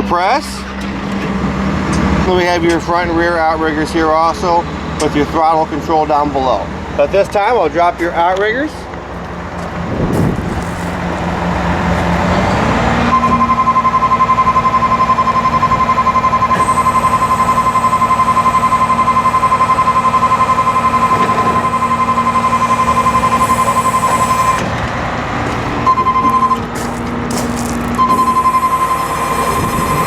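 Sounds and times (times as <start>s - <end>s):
diesel engine humming: 0.0s - 30.0s
warning alarm beeping: 13.1s - 24.8s, 25.8s - 27.0s, 27.9s - 30.0s.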